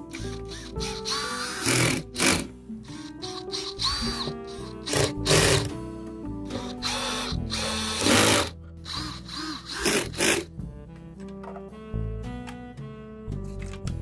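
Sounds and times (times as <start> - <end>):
background music: 0.0 - 14.0
power tool running in bursts: 0.1 - 5.7, 6.5 - 10.5.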